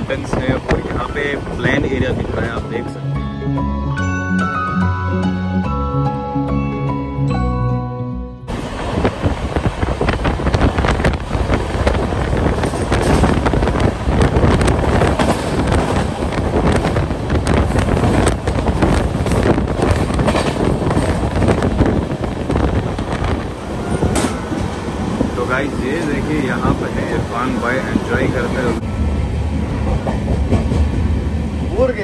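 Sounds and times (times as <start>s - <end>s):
train rumbling and rattling: 0.0s - 6.2s, 8.5s - 32.0s
wind on microphone: 8.5s - 27.2s.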